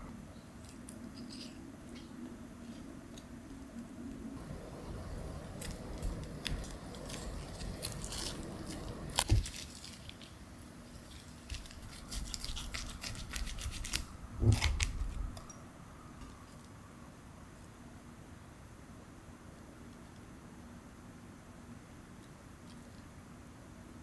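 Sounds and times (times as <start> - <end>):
crinkling and tearing: 4.4 - 15.5.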